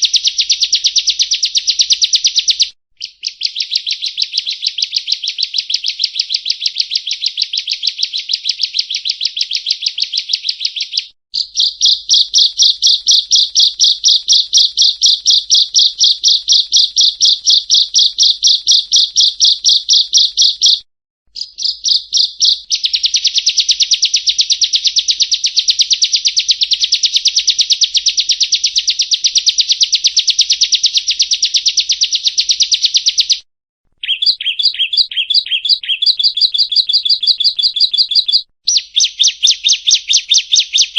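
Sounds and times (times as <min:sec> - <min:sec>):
bird singing rapid high chirps: 0:00.0 - 0:33.4, 0:34.0 - 0:40.9.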